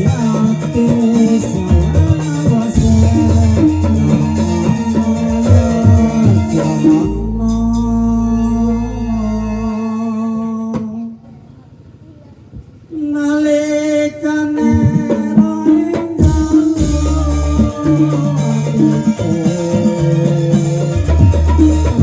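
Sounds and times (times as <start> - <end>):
drums: 0.0 - 10.0, 12.4 - 22.0
band music with held notes: 0.0 - 11.1, 13.8 - 22.0
deep bass hum: 1.6 - 10.6, 16.8 - 19.4, 20.7 - 22.0.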